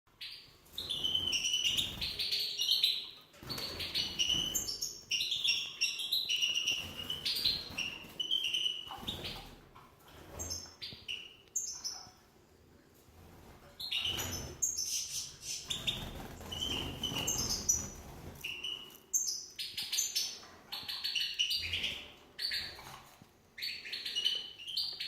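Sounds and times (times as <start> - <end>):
goldfinch cheeping: 13.8 - 22.8.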